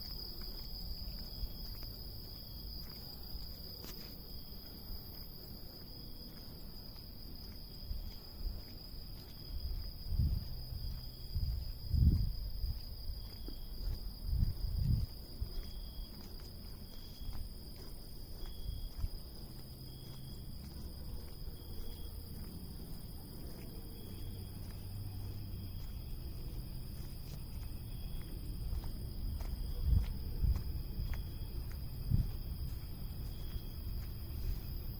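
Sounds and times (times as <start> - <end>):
cicadas droning: 0.0 - 34.9.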